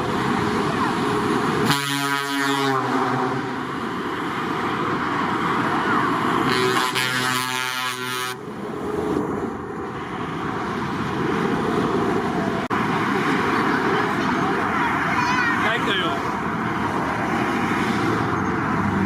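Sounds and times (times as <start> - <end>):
passing truck traffic: 0.0 - 19.0
truck air horn blast: 1.6 - 3.6, 6.4 - 8.4.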